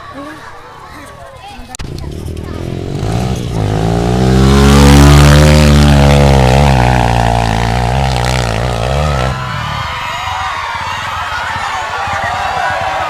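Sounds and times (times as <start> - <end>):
motorcycle engine revving hard: 1.8 - 9.9.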